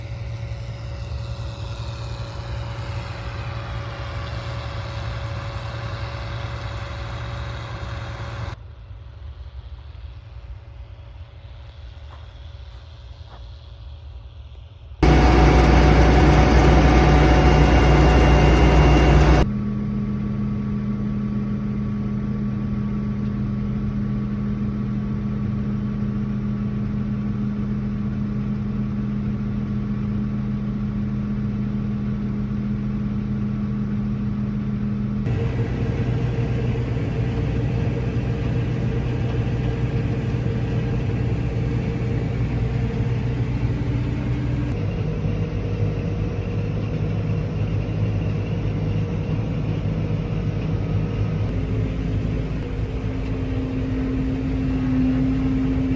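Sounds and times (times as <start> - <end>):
diesel engines of harvest machinery: 0.0 - 8.6, 15.0 - 19.5, 30.3 - 55.9.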